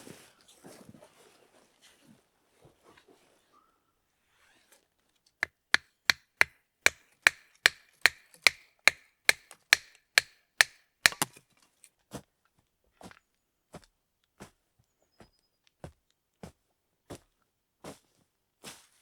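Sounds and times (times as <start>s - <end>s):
wood chopping blows: 5.4s - 11.4s.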